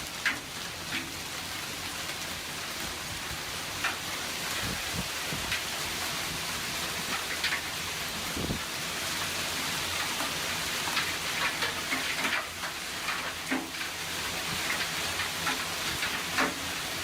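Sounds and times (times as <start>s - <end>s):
hail falling hiss: 0.0s - 17.0s
hailstones hitting surfaces: 0.0s - 17.0s.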